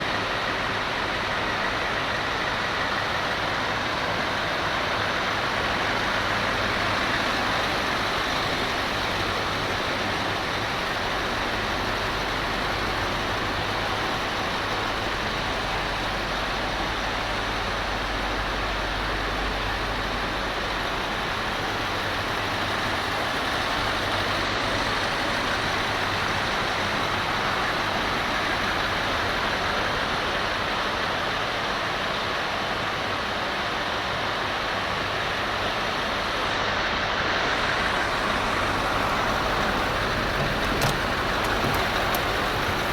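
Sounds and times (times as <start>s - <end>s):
truck diesel engine idling: 0.1s - 31.2s, 36.0s - 42.9s
steady hiss: 34.7s - 42.9s.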